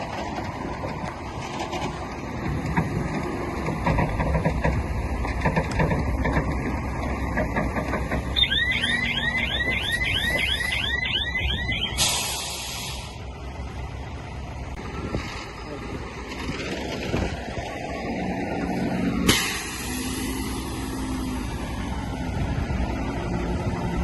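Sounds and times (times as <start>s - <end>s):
heavy machinery engine rumble: 0.0s - 24.0s
rapid repeating squeal: 8.4s - 12.0s
short hiss: 12.0s - 13.2s.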